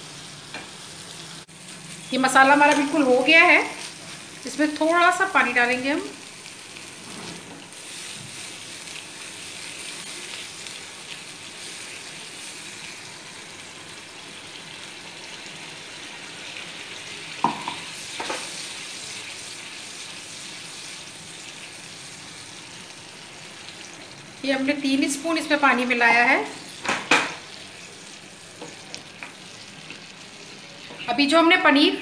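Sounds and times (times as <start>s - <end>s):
sauce sizzling in oil: 0.0s - 32.0s
spoon knocking against pan: 17.4s - 18.4s.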